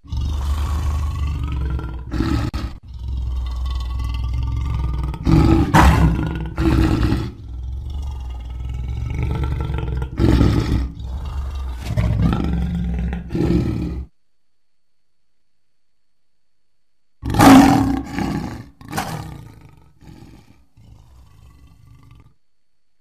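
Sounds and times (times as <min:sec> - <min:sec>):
lion roaring: 0:00.0 - 0:14.1, 0:17.2 - 0:22.4.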